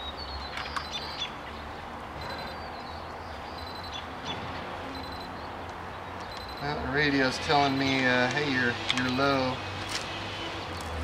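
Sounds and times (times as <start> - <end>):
short high alarm beeps: 2.2 - 2.6, 3.6 - 4.0, 4.9 - 5.4, 6.3 - 6.8.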